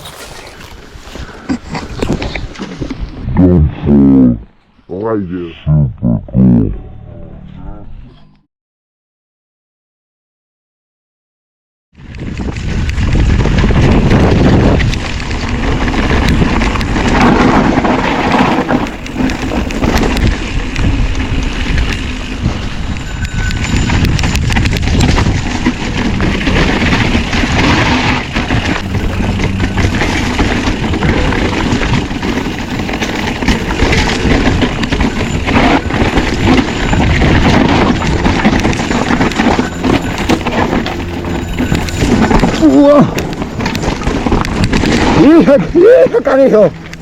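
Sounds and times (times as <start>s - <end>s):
bike rattling: 0.0s - 3.3s, 12.0s - 47.0s
bike tyres rolling on dirt: 0.0s - 3.4s, 12.0s - 47.0s
wind buffeting microphone: 12.0s - 47.0s.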